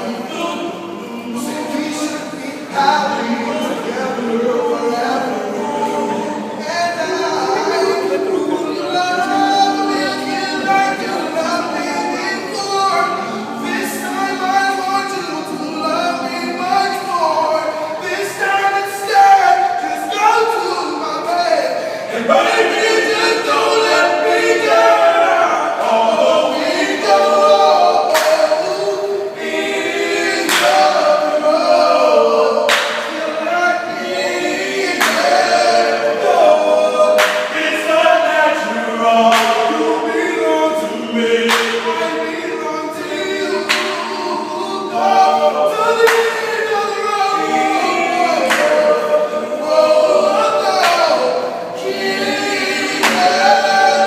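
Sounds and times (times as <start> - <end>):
group singing a cappella: 0.0 - 54.0
sharp hand clap: 28.1 - 28.6, 30.4 - 31.0, 32.7 - 33.2, 35.0 - 35.4, 37.2 - 37.7, 39.3 - 39.7, 41.5 - 42.1, 43.6 - 44.1, 46.0 - 46.6, 48.4 - 48.9, 50.7 - 51.3, 53.0 - 53.5.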